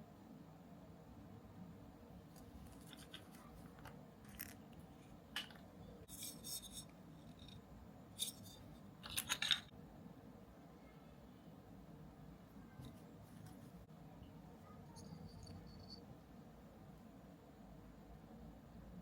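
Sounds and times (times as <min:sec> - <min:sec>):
small plastic parts clicking: 0:02.4 - 0:06.8, 0:08.2 - 0:09.7.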